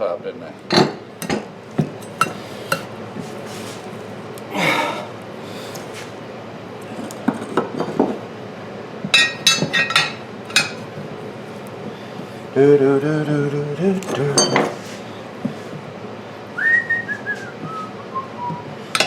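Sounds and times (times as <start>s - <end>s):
tire spoons clinking on wheel rim: 1.2s - 2.9s.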